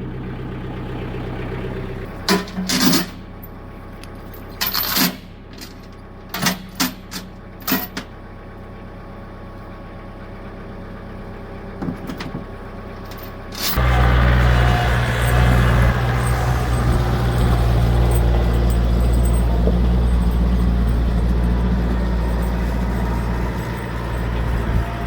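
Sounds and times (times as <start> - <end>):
atv engine idling: 0.0 - 4.6, 5.3 - 25.0
metallic clanks and rattles: 2.2 - 3.3, 4.0 - 8.1, 11.8 - 25.0.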